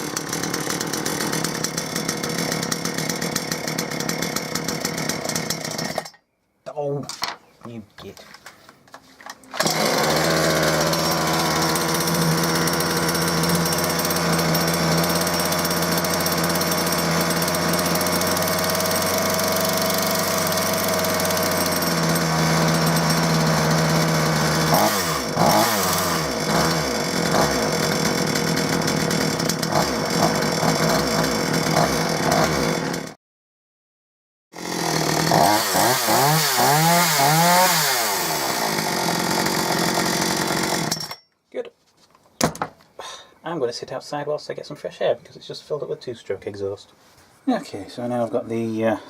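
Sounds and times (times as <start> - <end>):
chainsaw engine idling and revving: 0.0 - 6.1, 9.5 - 33.2, 34.6 - 41.2.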